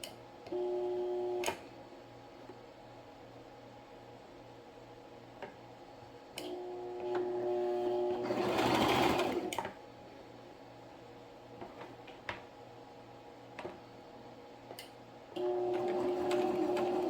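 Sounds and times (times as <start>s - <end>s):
sewing machine stitching: 8.1s - 9.6s, 15.4s - 17.0s.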